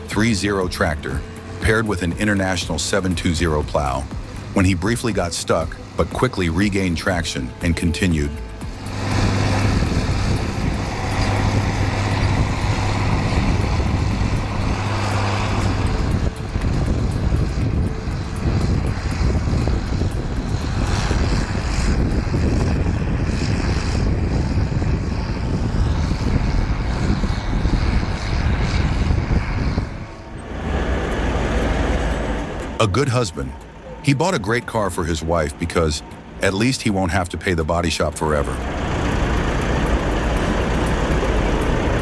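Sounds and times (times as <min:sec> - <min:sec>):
tractor engine under load: 0:34.4 - 0:42.0.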